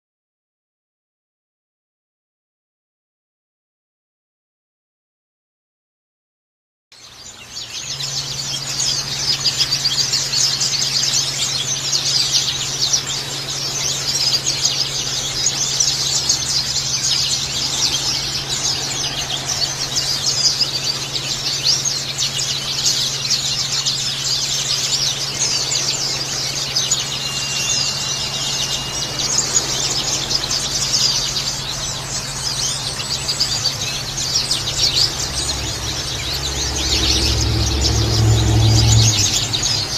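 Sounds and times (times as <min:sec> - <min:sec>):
birds chirping and twittering: 0:07.0 - 0:39.9
low hum: 0:11.8 - 0:39.9.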